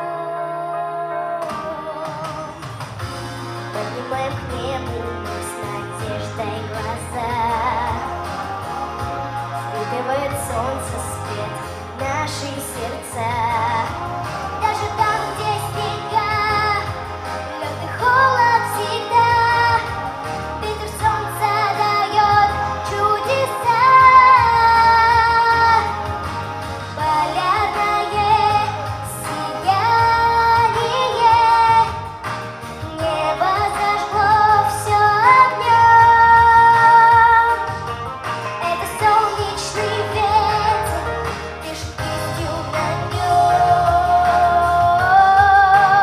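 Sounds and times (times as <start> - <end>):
woman singing pop song: 0.0 - 46.0
backing track with pulsing bass: 1.4 - 46.0.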